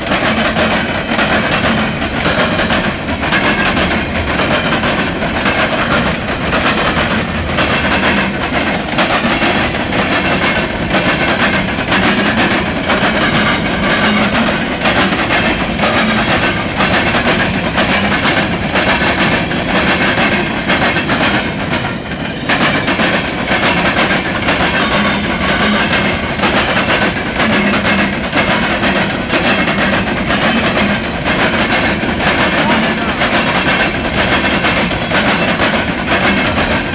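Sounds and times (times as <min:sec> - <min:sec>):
train wheels clattering over rail joints: 0:00.0 - 0:36.9.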